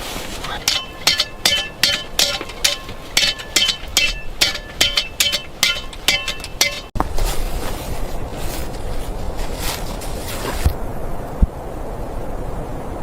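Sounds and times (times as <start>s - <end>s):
wind noise: 0.0s - 13.0s
hammer striking stone: 0.6s - 7.0s.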